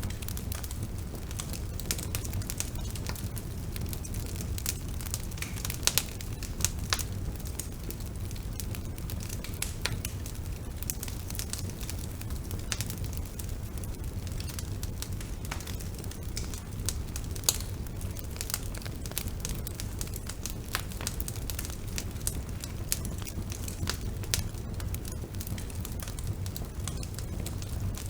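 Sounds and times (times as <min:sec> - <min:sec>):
bonfire crackling and popping: 0:00.0 - 0:28.0
low fire rumble: 0:00.0 - 0:28.0.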